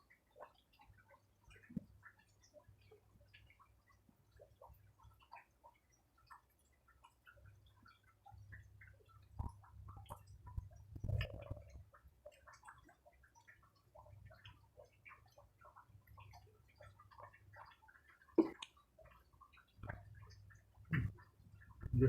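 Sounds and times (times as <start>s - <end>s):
wet mouth clicks: 9.4s - 11.8s, 18.4s - 18.8s.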